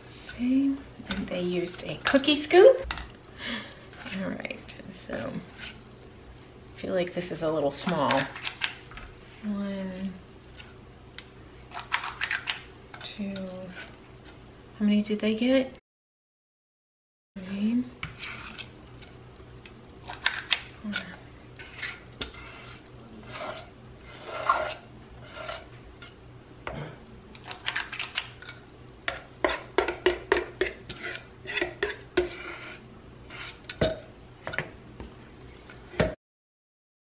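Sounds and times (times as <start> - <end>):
metal scoop scraping metal bowl: 20.1 - 26.2, 30.8 - 33.8.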